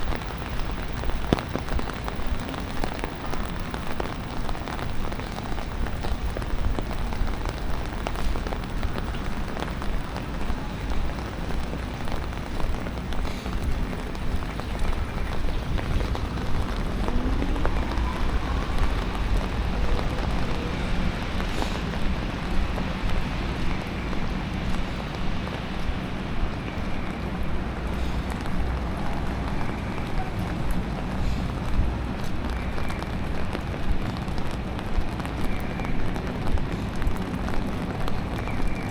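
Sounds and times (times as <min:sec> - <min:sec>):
low city rumble: 0:00.0 - 0:38.9
rain falling: 0:00.0 - 0:38.9
rising whine: 0:16.3 - 0:22.0.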